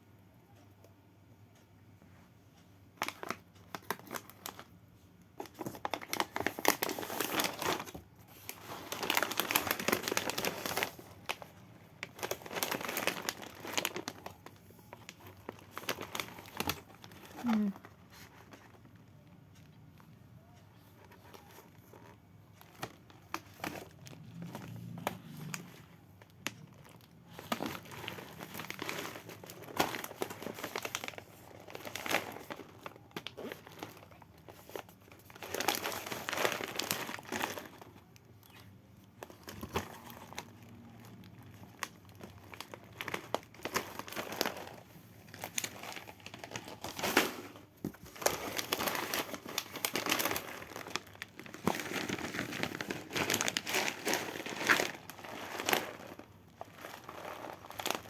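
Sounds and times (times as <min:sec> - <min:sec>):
packaging crinkling and rustling: 0:03.0 - 0:58.0.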